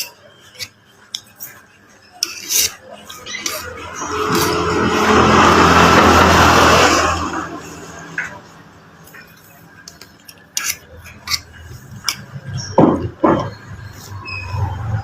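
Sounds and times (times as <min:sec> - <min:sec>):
cutlery clinking: 0:02.1 - 0:03.7
vehicle engine passing by: 0:03.7 - 0:08.4.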